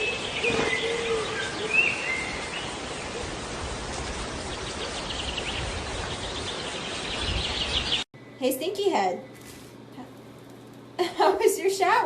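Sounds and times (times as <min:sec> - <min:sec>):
bird chirping: 0:00.0 - 0:03.2, 0:04.1 - 0:08.1
running water hiss: 0:00.0 - 0:08.0.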